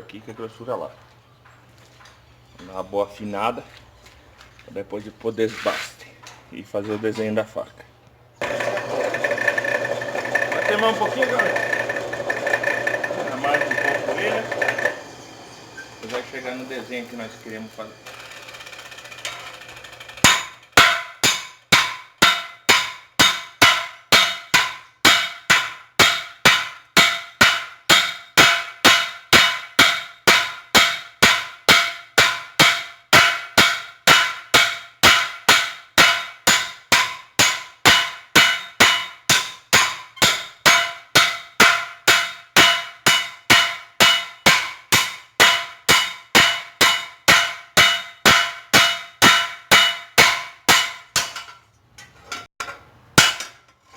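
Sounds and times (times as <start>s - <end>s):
hammer striking steel on anvil: 8.4s - 18.4s, 20.2s - 51.6s, 52.6s - 53.6s.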